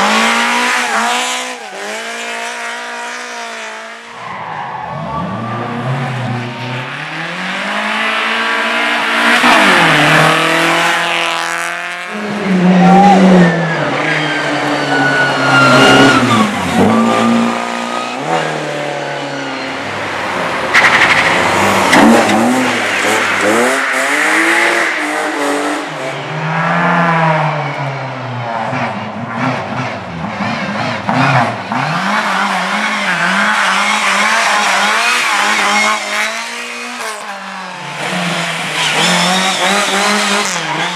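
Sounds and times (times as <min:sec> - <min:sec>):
racing car engines revving: 0:00.0 - 0:40.9
tyre squeal: 0:12.8 - 0:18.6, 0:38.6 - 0:40.9.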